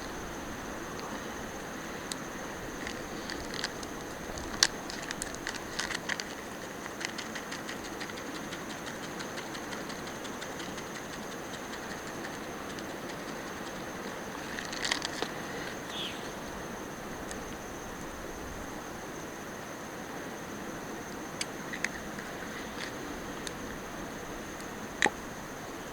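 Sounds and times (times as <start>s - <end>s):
steady hiss: 0.0s - 25.9s
sharp ticks and crackles: 1.9s - 16.4s.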